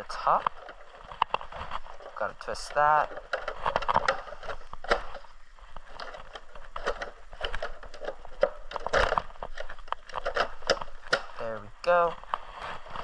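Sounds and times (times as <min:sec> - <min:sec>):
hard plastic scraping: 0:00.0 - 0:13.0
plastic clicks: 0:00.0 - 0:13.0
plastic knocks: 0:00.2 - 0:11.4.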